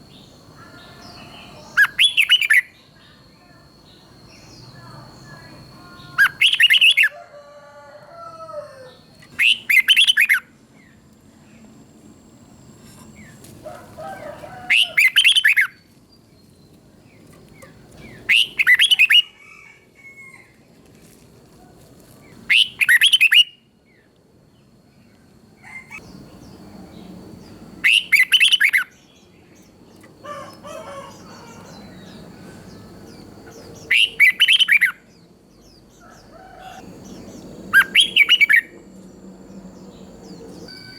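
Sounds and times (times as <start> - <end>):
bulbul singing bright phrases: 0.0 - 7.1, 9.2 - 10.5, 14.7 - 19.3, 25.8 - 30.2, 31.0 - 36.0, 37.0 - 40.9.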